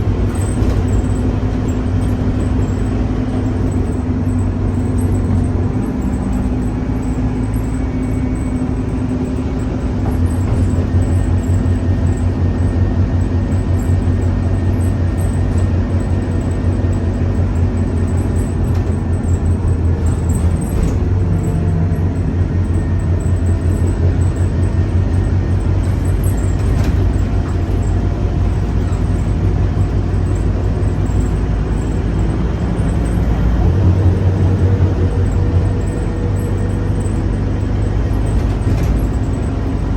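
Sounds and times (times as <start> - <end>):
bus engine droning: 0.0 - 39.9.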